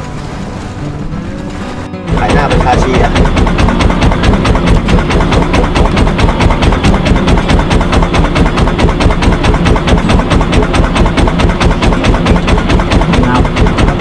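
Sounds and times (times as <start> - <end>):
boat engine knocking: 0.0 - 14.0.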